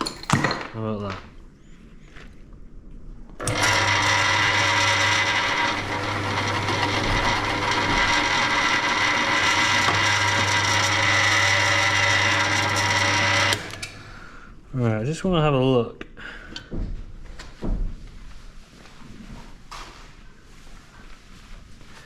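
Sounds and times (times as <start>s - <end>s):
drill press motor whine: 3.4s - 14.1s.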